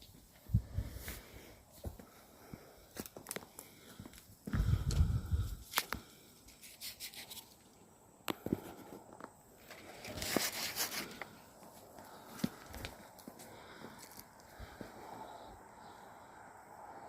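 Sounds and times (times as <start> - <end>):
twigs snapping: 5.7 - 6.1.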